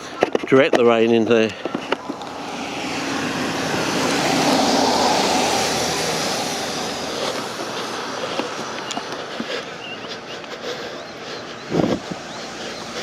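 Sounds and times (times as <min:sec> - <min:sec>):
vehicle passing by: 0:01.8 - 0:13.0.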